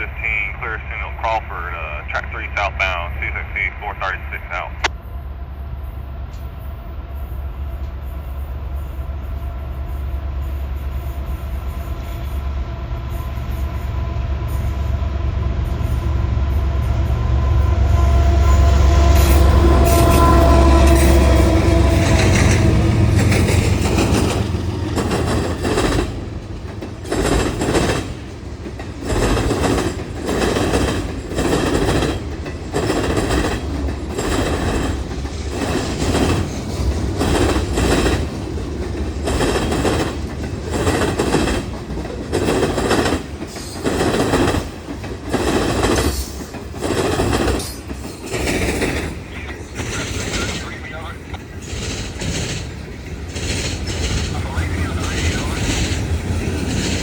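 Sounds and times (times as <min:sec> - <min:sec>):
locomotive engine rumble: 0:00.0 - 0:06.4, 0:12.4 - 0:57.0
train horn: 0:15.9 - 0:25.0
wheels clattering over rail joints: 0:21.8 - 0:49.2, 0:51.4 - 0:54.4.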